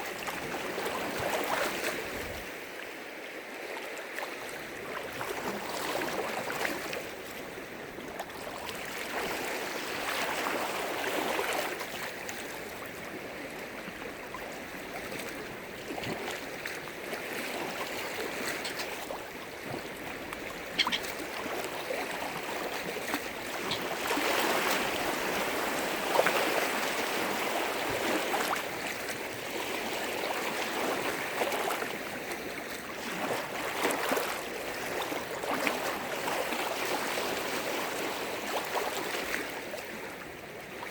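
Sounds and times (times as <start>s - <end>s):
waves washing against shore: 0.0s - 40.9s.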